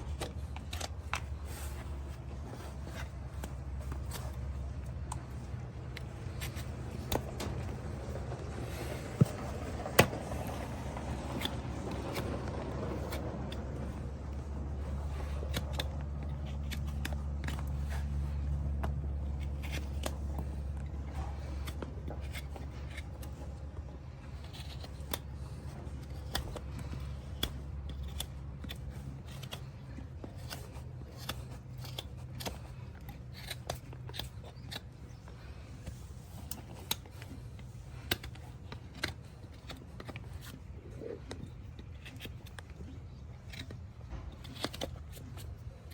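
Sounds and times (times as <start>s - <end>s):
hand tools clicking and scraping hoof: 0.0s - 45.9s
steady low hum: 0.0s - 45.9s.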